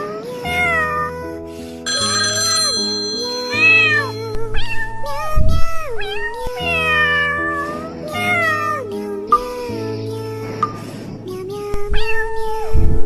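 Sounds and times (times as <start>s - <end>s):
background music: 0.0s - 11.8s.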